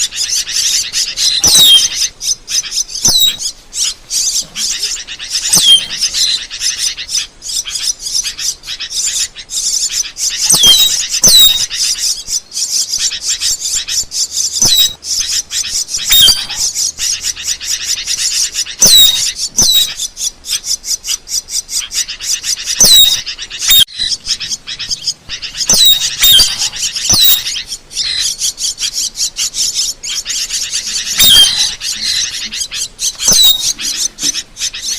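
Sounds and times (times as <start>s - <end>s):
high whistled bird notes: 0.0s - 20.2s, 21.0s - 34.9s
starling chirps and clicks: 0.0s - 34.9s.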